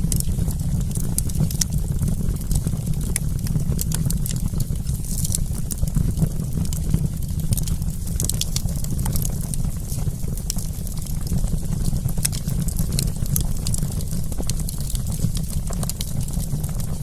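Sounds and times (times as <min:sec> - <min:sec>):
campfire crackling and popping: 0:00.0 - 0:17.0
low rumble of burning fire: 0:00.0 - 0:17.0.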